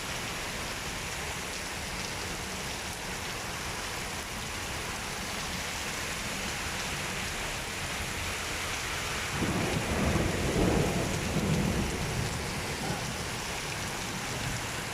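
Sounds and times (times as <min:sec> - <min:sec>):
steady rain falling: 0:00.0 - 0:14.9
thunder rumbling: 0:09.3 - 0:14.6.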